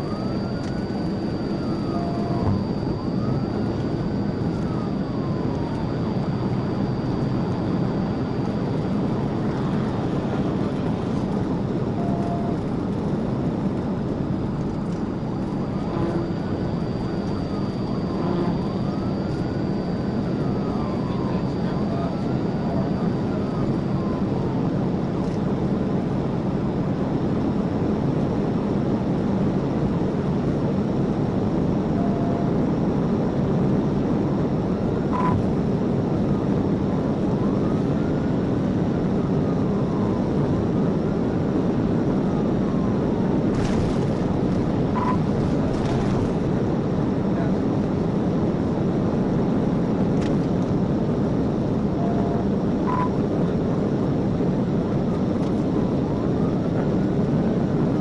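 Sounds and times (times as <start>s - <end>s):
short beeps: 0.0s - 8.9s, 12.0s - 12.6s, 35.1s - 35.5s, 44.9s - 45.3s, 52.0s - 53.2s
faint siren wailing: 0.0s - 28.2s, 29.6s - 49.9s, 50.7s - 58.0s
car engine and tyre roar: 43.4s - 46.5s.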